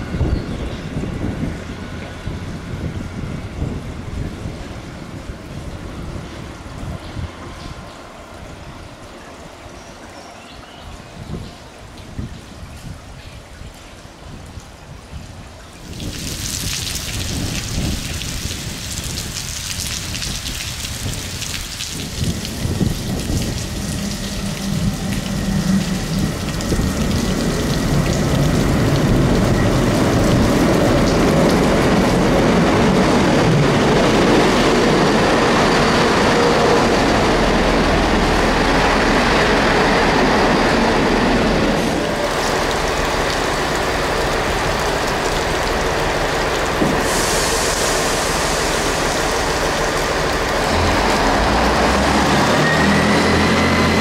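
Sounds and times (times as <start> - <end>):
diesel train rumbling: 0.0 - 12.0, 14.1 - 54.0
rain hissing: 15.8 - 54.0.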